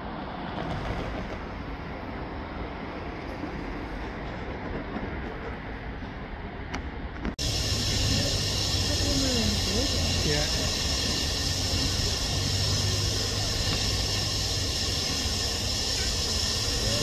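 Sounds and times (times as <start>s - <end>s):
train rumbling on rails: 0.0s - 17.0s
steady hiss: 7.4s - 17.0s.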